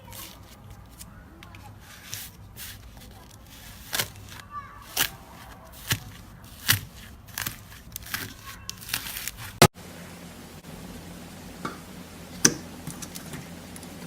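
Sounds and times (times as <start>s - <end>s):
slime squishing and popping: 3.8s - 9.7s.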